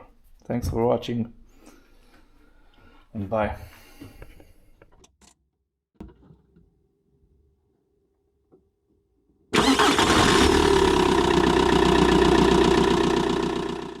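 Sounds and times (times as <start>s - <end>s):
car engine starting and running: 9.6s - 14.0s.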